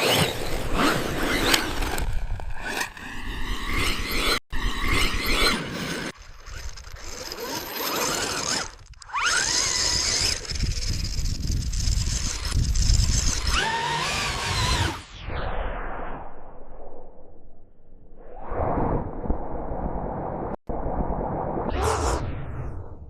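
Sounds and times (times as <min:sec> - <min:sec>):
electric rc car motor whining: 0:00.0 - 0:15.0.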